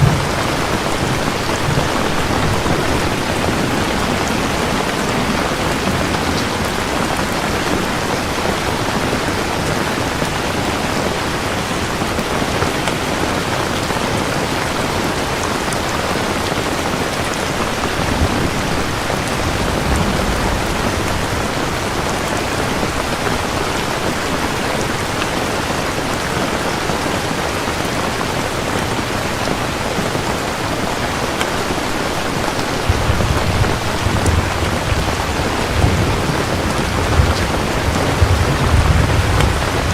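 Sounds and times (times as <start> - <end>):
thunder rumbling: 0.0 - 9.5, 16.9 - 24.9, 31.8 - 39.9
heavy rain falling: 0.0 - 39.9.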